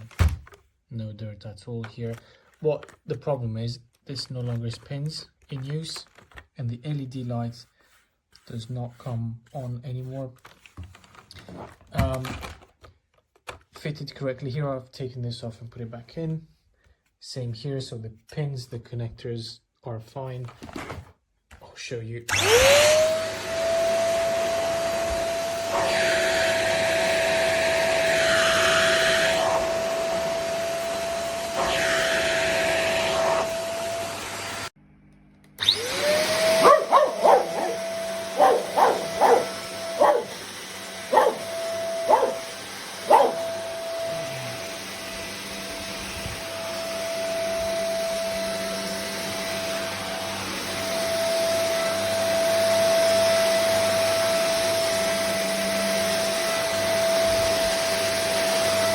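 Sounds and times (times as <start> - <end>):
vacuum motor whining: 22.3 - 34.7, 35.6 - 58.9.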